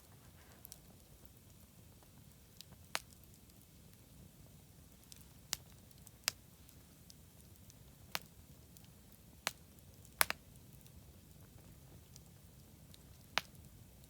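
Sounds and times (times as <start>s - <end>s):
campfire crackling: 0.0s - 14.0s
low hiss of burning fire: 0.0s - 14.0s
sharp fire pops: 9.4s - 10.4s.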